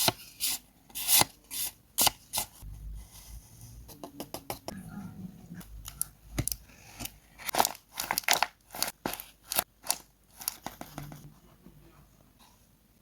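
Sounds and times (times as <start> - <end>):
paper crinkling: 6.9 - 11.2.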